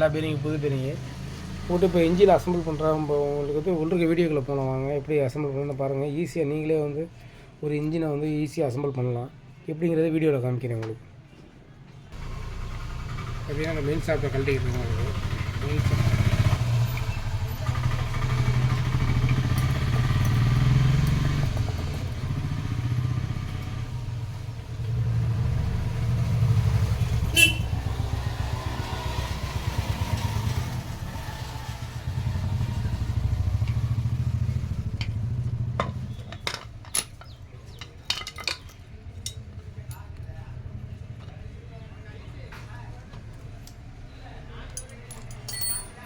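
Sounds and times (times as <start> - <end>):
small engine running: 12.2 - 23.8
light metal clinks: 44.7 - 46.0.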